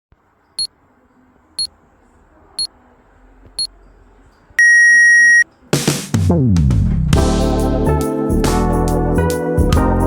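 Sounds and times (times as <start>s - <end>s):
long low beep: 4.6s - 5.4s
short high beeps: 4.6s - 5.4s.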